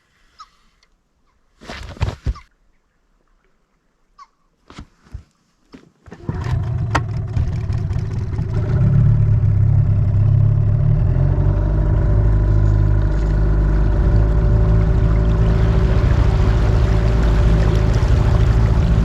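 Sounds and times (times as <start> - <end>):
motorboat engine running: 6.2 - 19.0.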